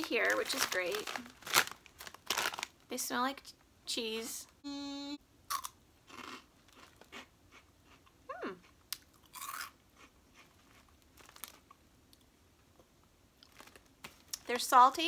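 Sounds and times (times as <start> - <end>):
person chewing crunchy snack: 5.5 - 11.7.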